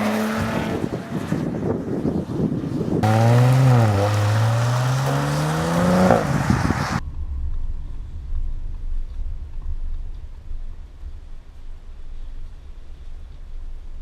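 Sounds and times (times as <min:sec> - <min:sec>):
wind rumble on microphone: 0:00.0 - 0:14.0
car engine accelerating hard: 0:03.0 - 0:07.0.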